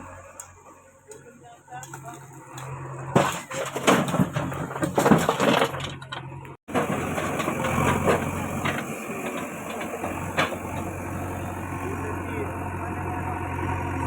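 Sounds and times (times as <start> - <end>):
diesel engine running: 0.0 - 14.0
knocks and crunching: 1.8 - 11.6.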